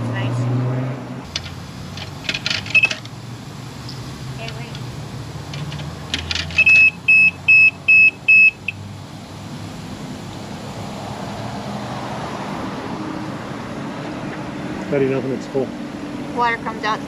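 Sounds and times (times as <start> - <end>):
short high electronic beeps: 6.6 - 8.7.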